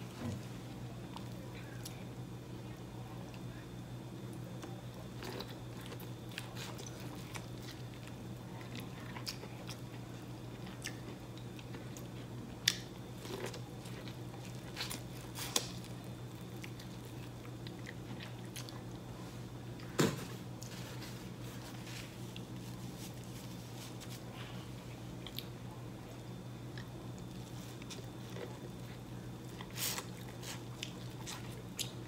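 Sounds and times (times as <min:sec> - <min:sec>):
steady low hum: 0:00.0 - 0:32.0
person chewing corn: 0:04.6 - 0:19.0, 0:26.7 - 0:32.0.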